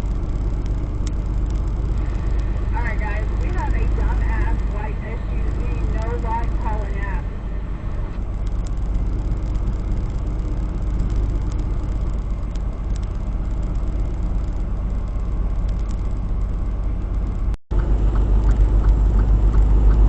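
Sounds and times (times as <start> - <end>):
diesel engine drone: 0.0 - 20.0
road noise: 0.0 - 20.0
faint ticks: 8.4 - 17.5.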